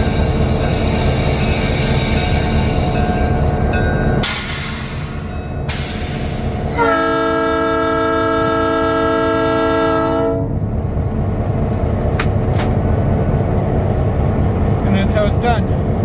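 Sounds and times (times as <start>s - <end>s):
train rumble: 0.0s - 16.0s
locomotive air horn: 6.7s - 10.6s.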